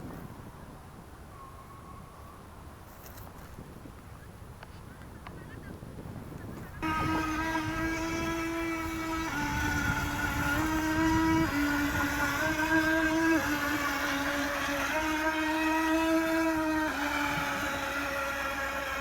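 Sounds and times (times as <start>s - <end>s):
toy boat electric motors whining: 6.5s - 19.0s.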